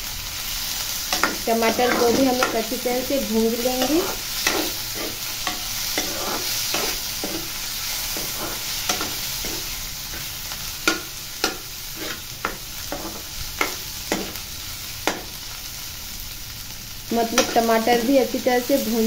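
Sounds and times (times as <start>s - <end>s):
vegetables sizzling in oil: 0.0s - 19.0s
metal spoon scraping and tapping pan: 1.1s - 2.7s, 3.8s - 14.4s, 17.3s - 18.0s.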